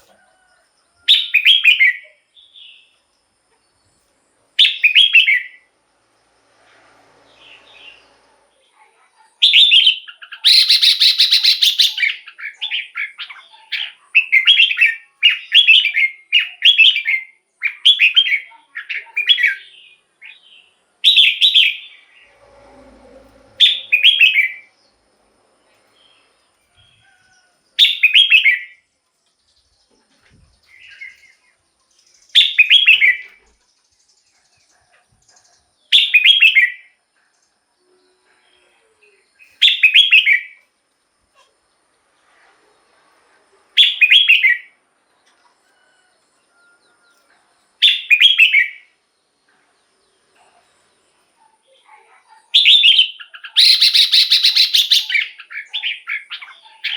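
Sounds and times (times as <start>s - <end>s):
bulbul singing warbled phrases: 51.6s - 56.9s.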